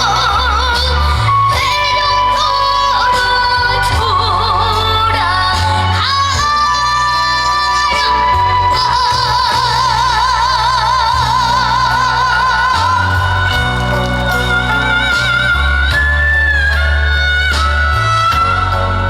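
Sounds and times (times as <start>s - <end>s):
backing music: 0.0s - 19.0s.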